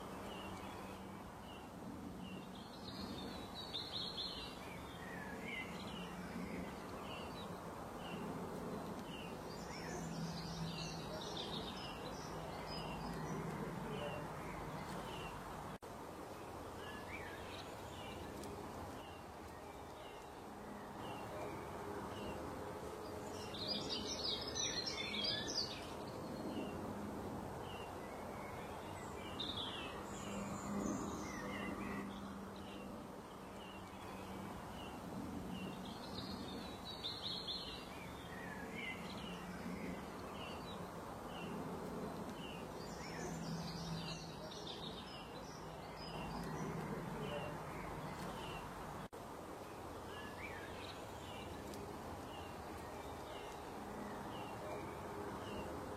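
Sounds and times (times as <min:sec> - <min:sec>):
birds chirping: 0:00.0 - 0:27.0, 0:27.7 - 0:55.8.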